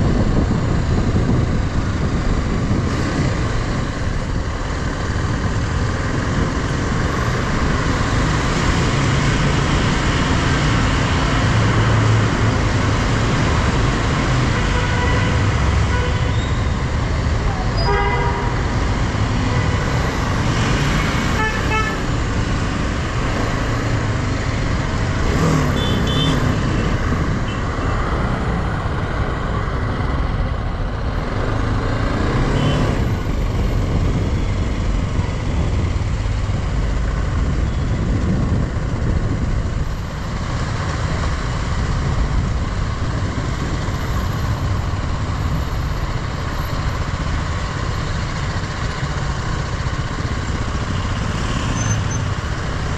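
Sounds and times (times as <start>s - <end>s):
motorcycle engine: 1.2s - 39.7s
vehicle horns honking: 17.8s - 18.6s, 21.3s - 22.1s, 25.7s - 26.5s.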